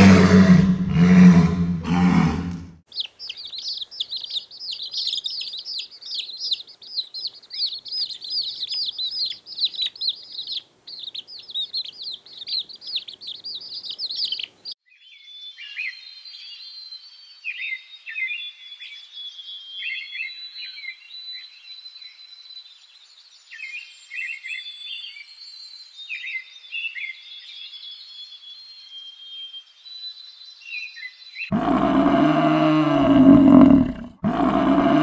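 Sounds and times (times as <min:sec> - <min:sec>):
walrus bellowing: 0:00.0 - 0:02.8, 0:31.5 - 0:35.0
baby chicks peeping: 0:02.9 - 0:14.8.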